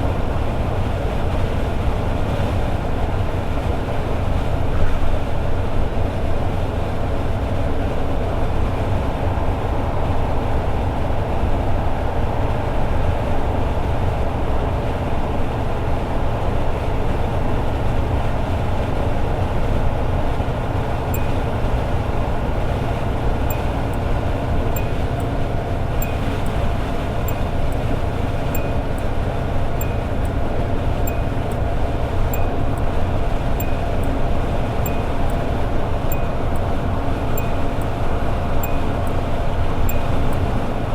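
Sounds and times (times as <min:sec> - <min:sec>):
road noise: 0:00.0 - 0:40.9
car engine cruising: 0:09.1 - 0:40.9
faint regular ticking: 0:20.6 - 0:40.9.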